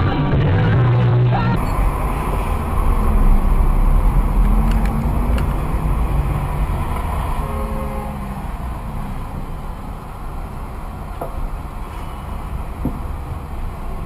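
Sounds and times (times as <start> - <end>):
car engine and road rumble: 0.0 - 14.0
faint clicks: 4.4 - 5.6.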